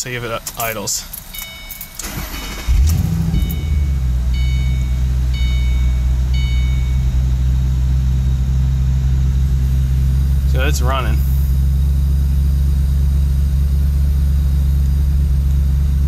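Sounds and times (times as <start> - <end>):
car engine starting and idling: 0.0 - 16.0
dashboard warning chime: 0.3 - 7.8.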